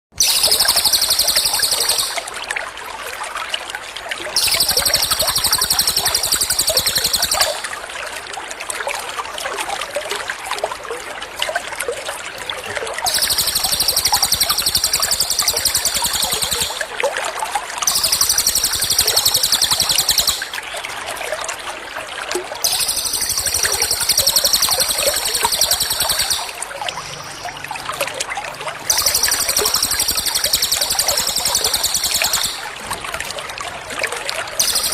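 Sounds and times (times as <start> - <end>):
high-pitched trilled birdsong: 0.2 - 2.3, 4.4 - 7.8, 13.1 - 16.9, 17.9 - 20.6, 22.6 - 27.6, 28.8 - 32.8, 34.6 - 34.9
water trickling: 0.2 - 34.9.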